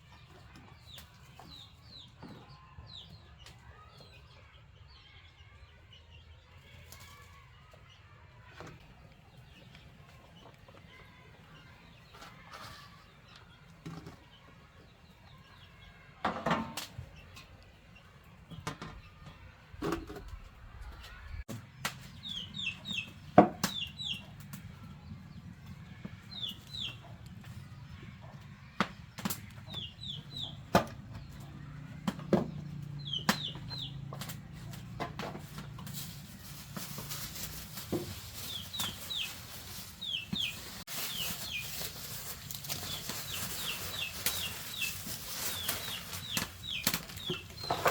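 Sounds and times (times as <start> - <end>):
chickens clucking: 16.6 - 47.9.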